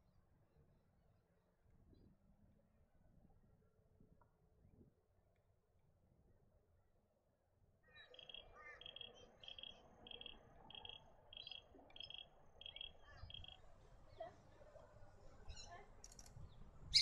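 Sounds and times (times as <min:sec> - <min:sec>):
faint bird calls: 0:07.8 - 0:14.4.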